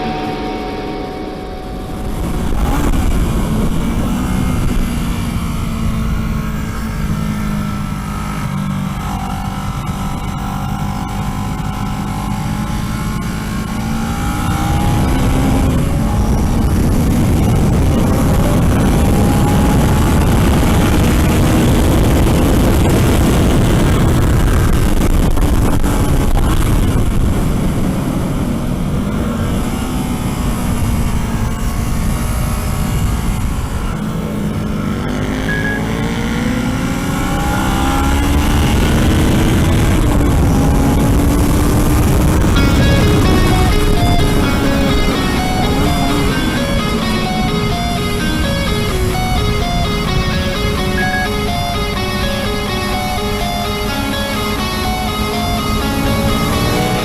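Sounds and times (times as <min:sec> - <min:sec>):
wind rush: 0:00.0 - 0:34.6, 0:38.1 - 0:57.0
motorcycle engine at speed: 0:00.0 - 0:57.0.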